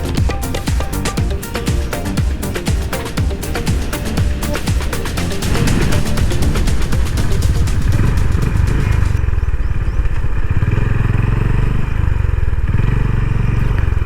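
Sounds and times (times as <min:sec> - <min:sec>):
rhythmic music with steady beat: 0:00.0 - 0:09.2
vehicle engine and road rumble: 0:03.2 - 0:14.0.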